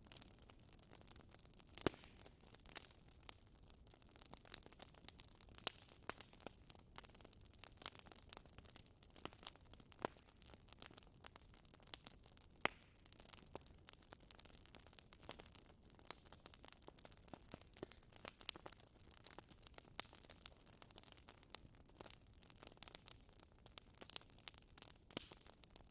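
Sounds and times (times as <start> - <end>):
wood fire crackling: 0.0 - 25.9.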